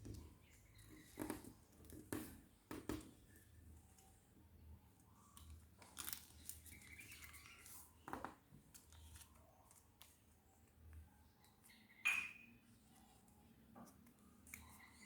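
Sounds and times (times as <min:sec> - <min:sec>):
paper rustling and creasing: 0:05.4 - 0:10.3.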